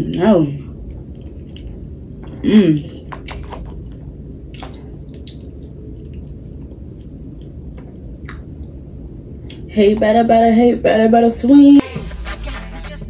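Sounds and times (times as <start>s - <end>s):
low background hum: 0.0s - 13.0s
close-up chewing: 0.8s - 2.0s, 3.2s - 8.6s
wet mouth clicks: 4.6s - 7.5s.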